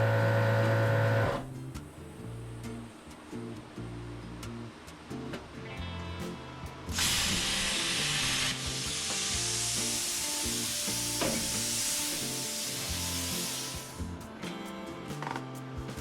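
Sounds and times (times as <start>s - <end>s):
plasma cutter hissing: 6.9s - 14.1s.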